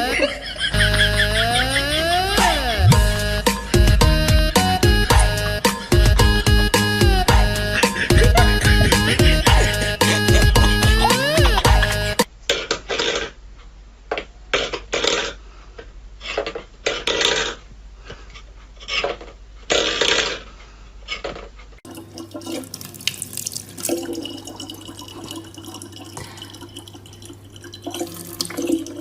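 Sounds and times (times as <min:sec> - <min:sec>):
tap running: 0:07.3 - 0:12.2
water splashing: 0:21.9 - 0:29.0.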